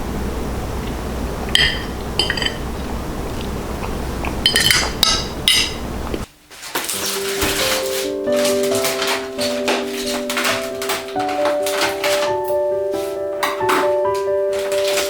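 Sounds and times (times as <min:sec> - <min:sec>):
low hum: 0:00.0 - 0:06.3
dishes and glasses clinking: 0:01.5 - 0:02.9, 0:04.2 - 0:05.9, 0:06.8 - 0:15.0
background music: 0:07.0 - 0:15.0.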